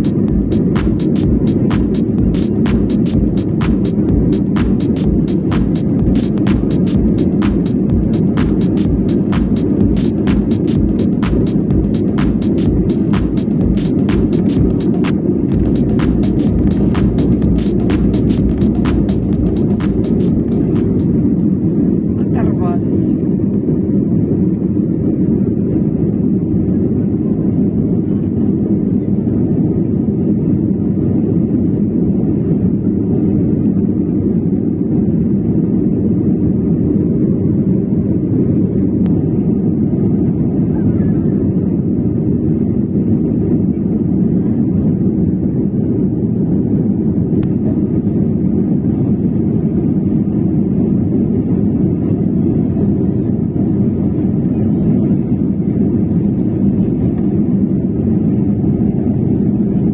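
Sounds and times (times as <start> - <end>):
aircraft cabin engine rumble: 21.1 - 59.9.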